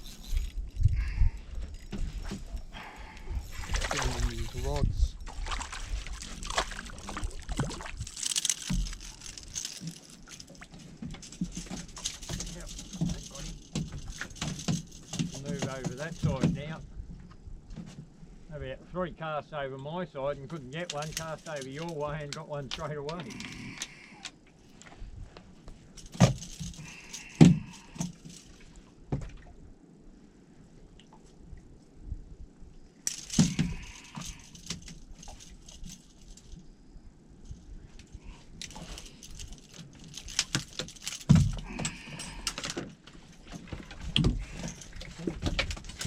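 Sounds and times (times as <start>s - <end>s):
fishing gear knocking and rattling: 0.0s - 16.9s, 20.5s - 24.5s, 25.7s - 29.4s, 33.1s - 36.7s, 37.4s - 46.0s.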